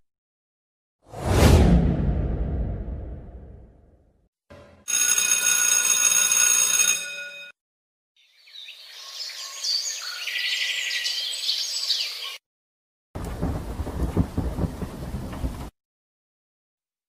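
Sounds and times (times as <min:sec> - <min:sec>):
school bell ringing: 0:04.8 - 0:07.6
birds chirping: 0:08.2 - 0:12.4.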